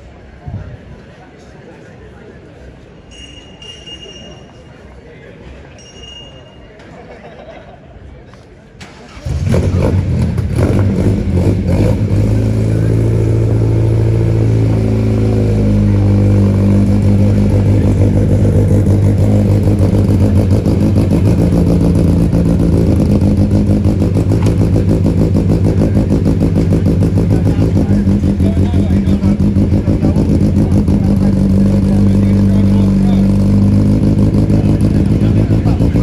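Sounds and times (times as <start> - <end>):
car engine idling: 8.8 - 36.0.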